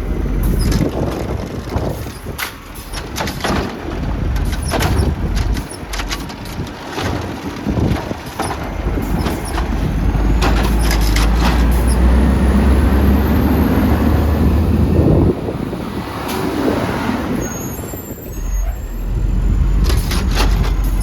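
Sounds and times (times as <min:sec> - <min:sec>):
garbage truck engine drone: 0:00.0 - 0:21.0
knocks and clatter: 0:00.4 - 0:12.2, 0:19.7 - 0:21.0.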